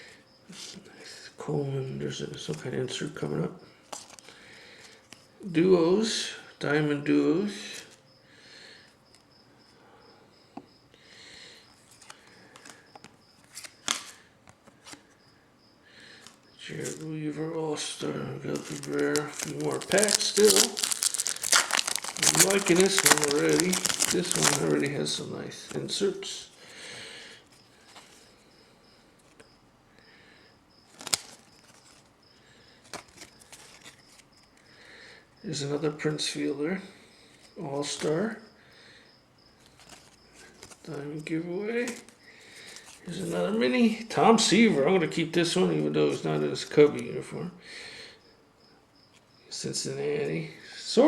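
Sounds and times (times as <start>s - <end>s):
sharp click of cards: 13.6s - 14.2s
cards rustling: 18.5s - 25.0s, 30.9s - 32.0s.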